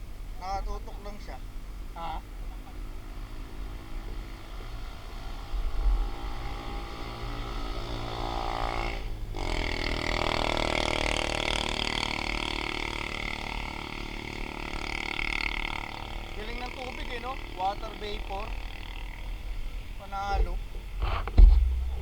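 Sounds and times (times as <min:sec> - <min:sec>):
vehicle engine hum: 0:00.0 - 0:22.0
rush of passing traffic: 0:01.3 - 0:22.0
wind buffeting microphone: 0:19.4 - 0:22.0.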